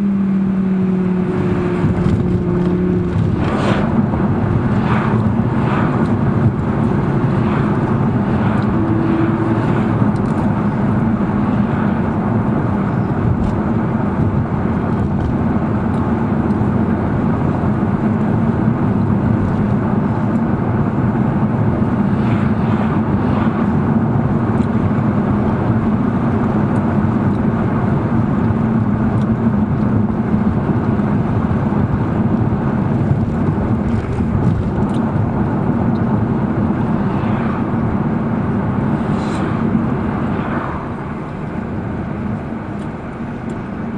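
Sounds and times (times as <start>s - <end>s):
car engine running: 0.0s - 43.9s
road noise: 0.0s - 43.9s.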